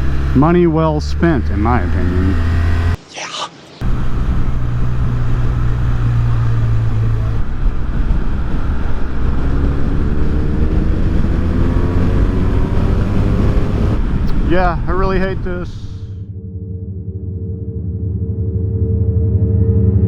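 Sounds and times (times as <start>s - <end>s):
motorcycle engine running: 0.0s - 3.0s, 3.8s - 14.2s
wind rushing over microphone: 1.4s - 16.0s.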